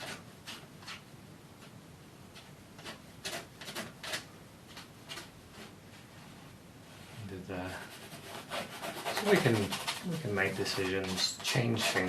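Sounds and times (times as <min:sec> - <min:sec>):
painting knife scraping canvas: 0:00.0 - 0:01.7, 0:02.3 - 0:05.8, 0:07.7 - 0:12.0.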